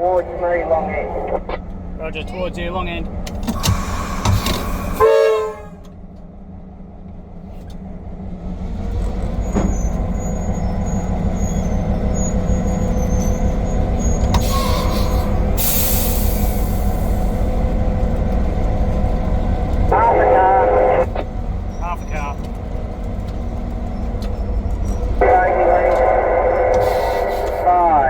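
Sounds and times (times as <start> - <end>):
diesel engine throttling up: 0.0 - 28.0
locomotive horn toot: 4.7 - 5.9, 12.6 - 16.9.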